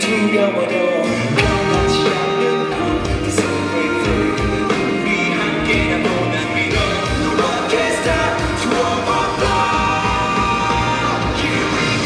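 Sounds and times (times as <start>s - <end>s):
live rock band playing: 0.0s - 12.0s
person singing: 0.0s - 12.0s
drums beating: 1.2s - 12.0s.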